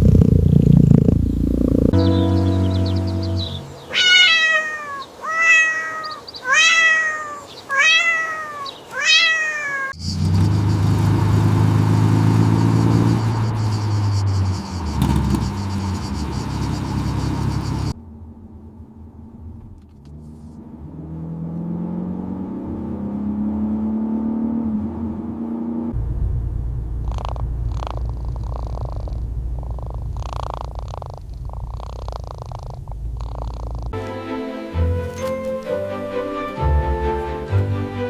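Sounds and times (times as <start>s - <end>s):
quiet hum rising in pitch: 0.0s - 3.9s, 10.0s - 24.0s, 24.6s - 30.2s
low engine-like drone: 0.0s - 4.0s, 10.0s - 22.7s, 24.7s - 30.3s
cat meowing: 3.6s - 10.0s.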